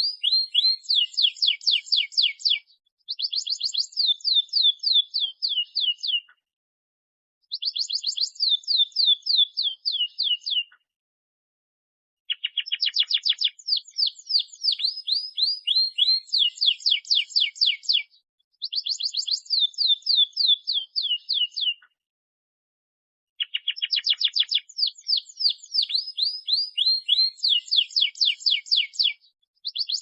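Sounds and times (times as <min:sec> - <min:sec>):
canary singing: 0:00.0 - 0:06.3, 0:07.5 - 0:10.8, 0:12.3 - 0:21.9, 0:23.4 - 0:30.0.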